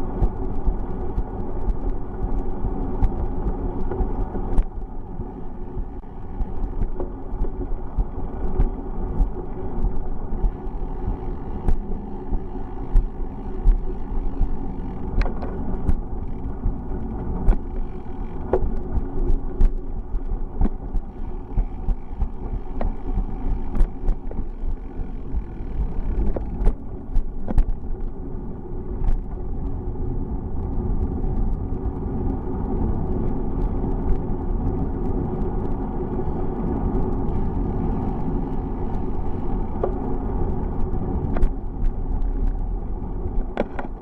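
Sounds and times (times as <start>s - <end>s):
bicycle knocks and rattles: 0.0s - 28.2s, 37.0s - 44.0s
bicycle rolling rumble: 0.0s - 44.0s.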